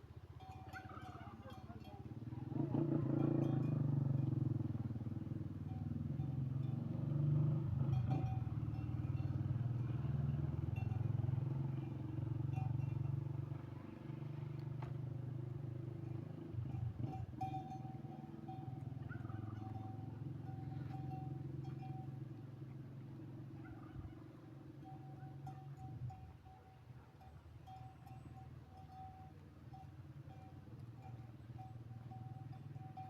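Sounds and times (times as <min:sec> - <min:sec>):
faint clinks: 0:00.3 - 0:04.7, 0:05.6 - 0:13.9, 0:15.8 - 0:22.7, 0:24.8 - 0:33.0
motor engine running: 0:00.8 - 0:26.5.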